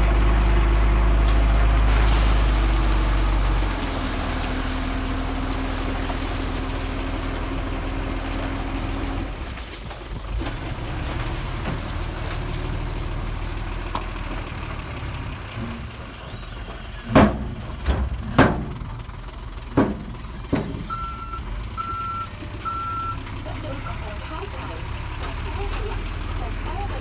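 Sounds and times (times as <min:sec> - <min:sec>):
heavy machinery engine running: 0:00.0 - 0:27.0
loud metal clanks: 0:15.6 - 0:21.2
reversing alarm beeps: 0:20.8 - 0:23.2.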